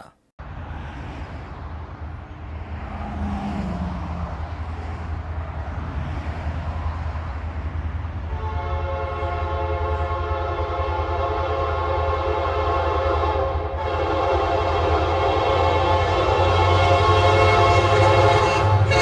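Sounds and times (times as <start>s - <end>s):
diesel locomotives rumbling: 0.0s - 19.0s
train air horn chord: 8.3s - 19.0s.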